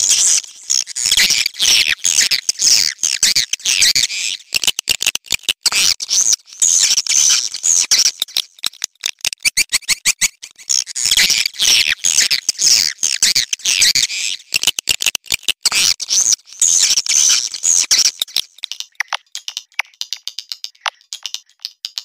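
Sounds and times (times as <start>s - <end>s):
rapid dry clicks: 8.2s - 9.7s, 14.5s - 15.7s, 18.0s - 22.0s.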